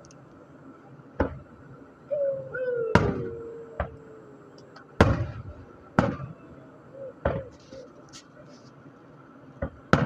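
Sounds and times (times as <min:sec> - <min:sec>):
fireworks bursting: 0:02.9 - 0:04.0, 0:05.0 - 0:06.6.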